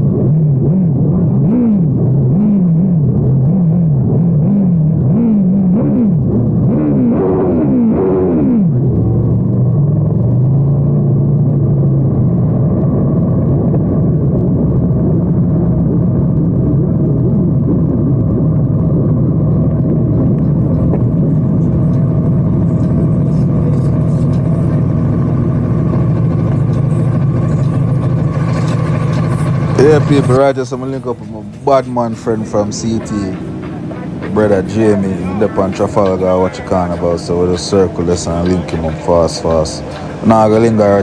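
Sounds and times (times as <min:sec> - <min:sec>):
motorcycle engine droning: 0:00.0 - 0:41.0.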